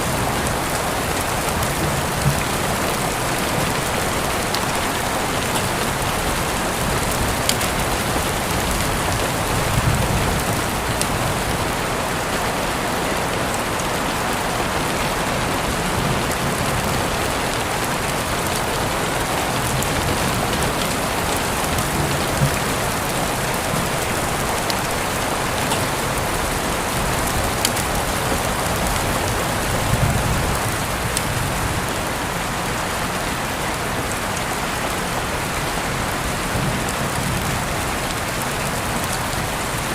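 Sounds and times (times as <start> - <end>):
steady rain falling: 0.0 - 39.9
sharp raindrop ticks: 19.4 - 31.4.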